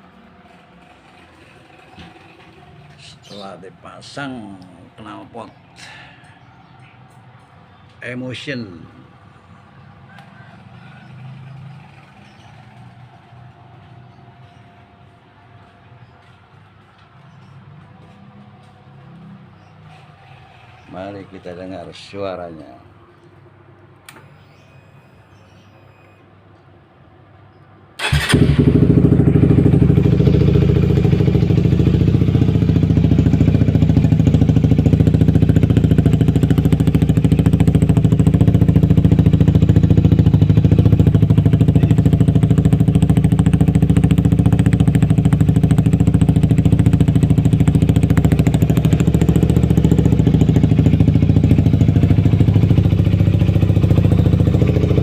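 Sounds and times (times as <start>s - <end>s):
motorcycle engine starting and idling: 0.4s - 5.5s, 9.8s - 14.9s, 28.0s - 55.0s.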